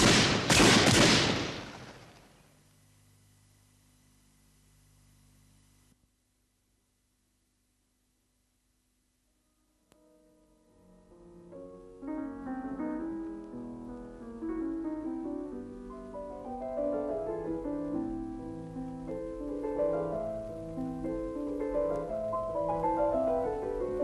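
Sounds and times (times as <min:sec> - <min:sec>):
piano music: 0:10.0 - 0:24.0.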